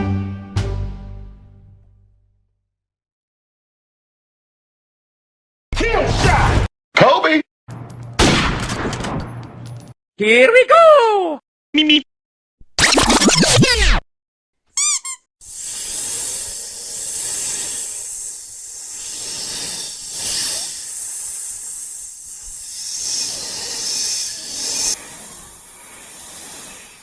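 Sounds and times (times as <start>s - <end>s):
long high hiss: 15.4s - 27.0s.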